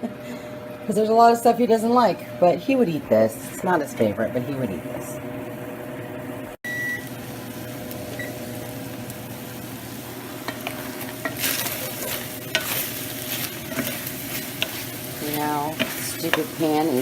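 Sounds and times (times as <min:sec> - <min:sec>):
chicken sizzling in a pan: 0:06.7 - 0:17.0.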